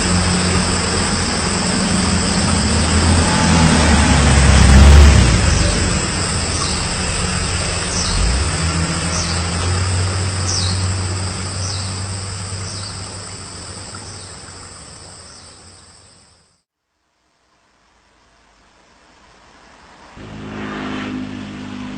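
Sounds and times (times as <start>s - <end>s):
vehicle engine hum: 0.0s - 16.4s, 20.2s - 21.9s
high insect drone: 0.0s - 16.6s.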